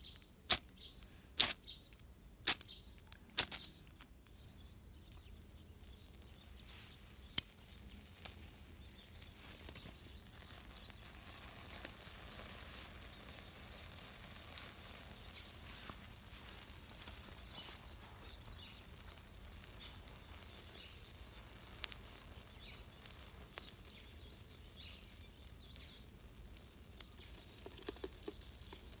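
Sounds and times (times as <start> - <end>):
faint outdoor hiss: 0.0 - 29.0.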